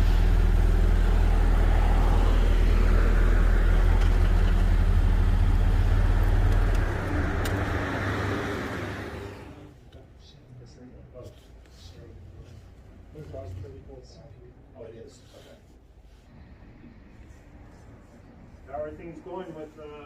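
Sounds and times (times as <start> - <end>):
car road rumble and rushing: 0.0 - 9.7.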